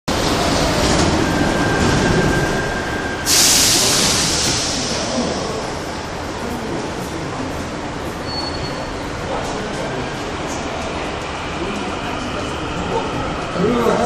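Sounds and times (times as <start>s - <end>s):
train low rumble: 0.1s - 14.0s
loud hiss: 3.2s - 5.7s.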